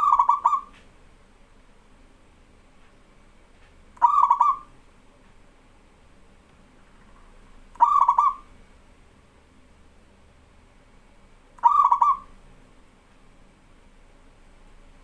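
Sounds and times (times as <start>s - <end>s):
dove cooing: 0.0s - 0.8s, 4.0s - 4.7s, 7.8s - 8.5s, 11.6s - 12.4s.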